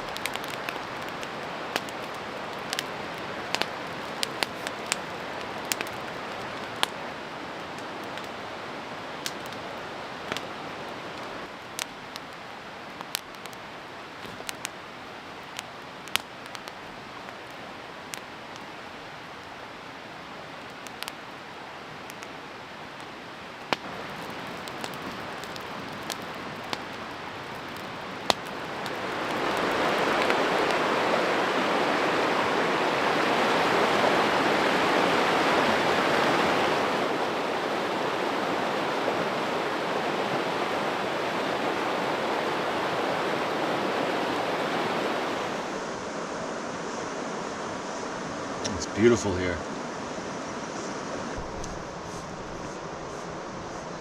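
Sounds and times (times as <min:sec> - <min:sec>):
rushing stream water: 0:00.0 - 0:54.0
sharp snaps: 0:03.5 - 0:05.0.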